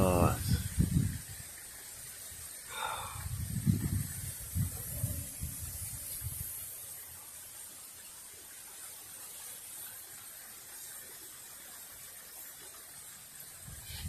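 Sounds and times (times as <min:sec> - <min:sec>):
wind buffeting microphone: 0:00.0 - 0:01.5, 0:03.1 - 0:06.6, 0:13.6 - 0:14.0
rain hissing: 0:00.0 - 0:14.0.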